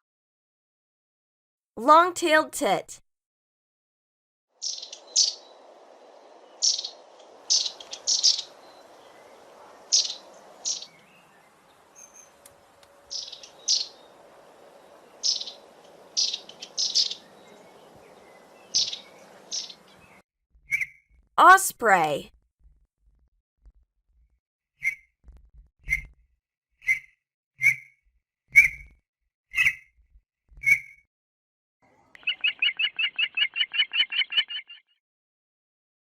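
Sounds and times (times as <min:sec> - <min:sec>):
small bird calling high thin notes: 0:04.6 - 0:05.6, 0:06.4 - 0:20.2
faint background rush: 0:04.9 - 0:20.2.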